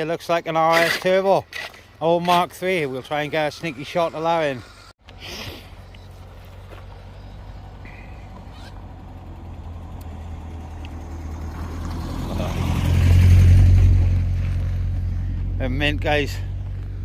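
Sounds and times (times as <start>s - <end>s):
car engine hum: 5.7s - 17.0s.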